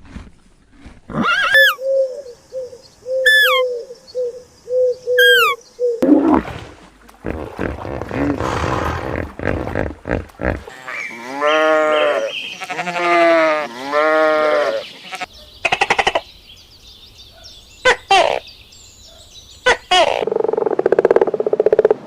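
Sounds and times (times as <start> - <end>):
drawn-out bleats: 10.0 - 15.3.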